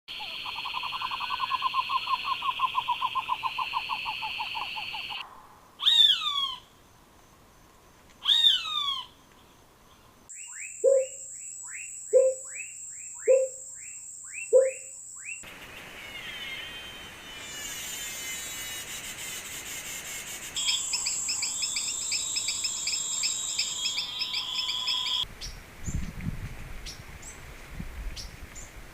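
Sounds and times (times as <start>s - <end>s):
descending whistled bird calls: 0.1s - 5.2s, 5.8s - 6.7s, 8.2s - 9.2s, 9.9s - 25.6s
high insect whine: 0.1s - 5.2s, 10.3s - 26.0s
rapid chirping: 0.1s - 5.2s, 10.3s - 25.2s
insect drone: 0.1s - 26.0s.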